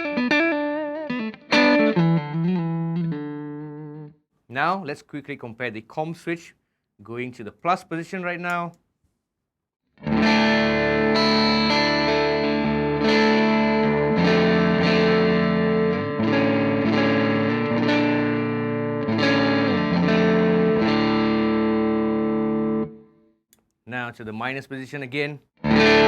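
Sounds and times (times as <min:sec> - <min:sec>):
overdriven electric guitar chords: 0:00.0 - 0:04.2, 0:10.0 - 0:23.0, 0:25.6 - 0:26.0.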